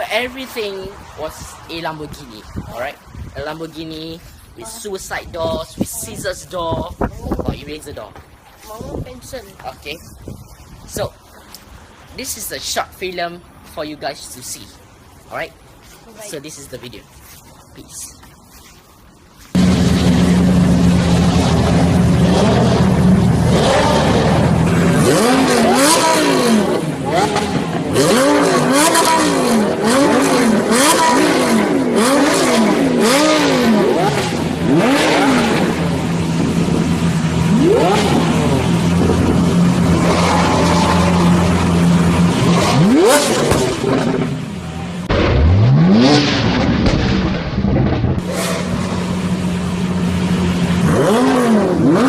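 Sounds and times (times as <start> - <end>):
sports car engine idling: 19.6 - 45.1, 48.2 - 52.0
cars accelerating away: 19.6 - 52.0
engine revving: 19.6 - 52.0.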